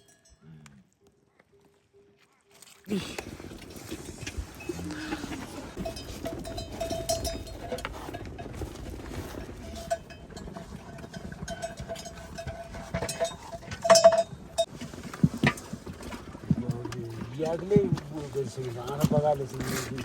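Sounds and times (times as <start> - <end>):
bell clatter: 0.0 - 0.4, 3.6 - 14.7
livestock bell ringing: 0.0 - 0.6, 4.0 - 14.7.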